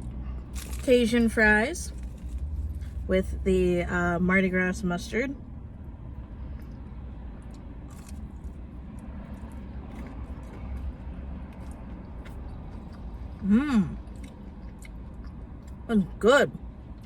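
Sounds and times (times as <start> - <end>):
steady low rumble: 0.0 - 17.0
chewing clicks: 7.4 - 13.4, 14.0 - 15.8
person humming mmm: 13.4 - 14.0.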